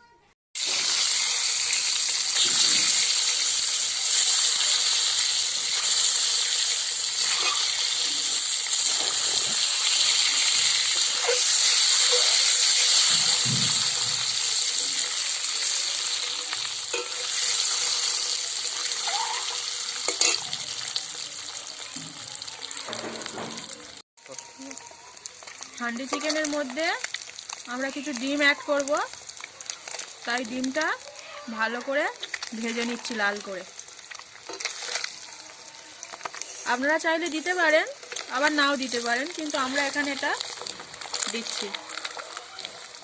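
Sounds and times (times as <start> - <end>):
eggs sizzling in oil: 0.6 - 43.0.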